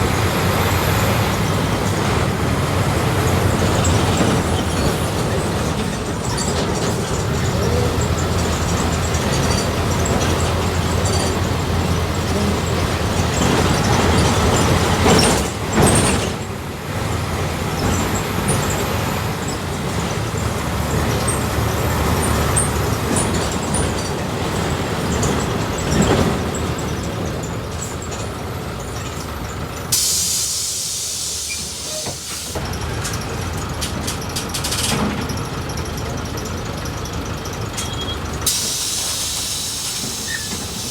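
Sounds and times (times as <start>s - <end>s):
bus engine running: 0.0s - 40.9s
compressed air hiss: 29.9s - 32.6s, 38.5s - 40.9s.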